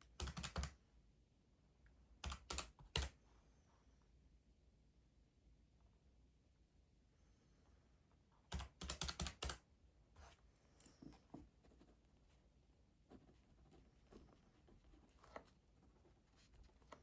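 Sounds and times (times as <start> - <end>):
key presses: 0.0 - 0.7.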